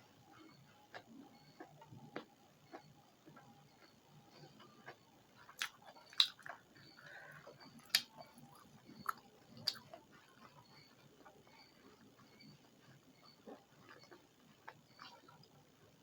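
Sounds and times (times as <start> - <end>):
person chewing: 4.8 - 7.2, 7.8 - 10.0.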